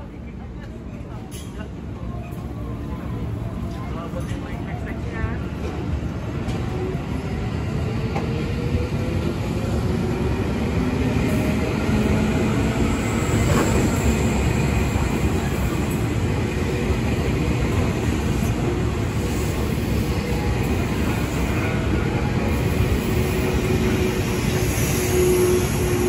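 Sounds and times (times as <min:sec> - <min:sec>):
train wheels rumbling on rails: 0:03.2 - 0:26.0.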